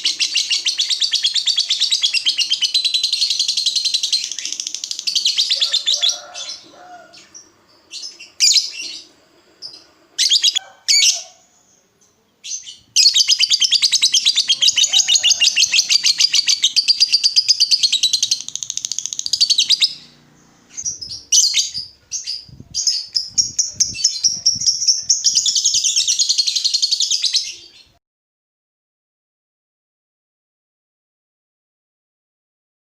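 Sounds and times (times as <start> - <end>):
lovebird chattering: 0.0 - 6.7, 7.3 - 11.3, 12.5 - 27.8.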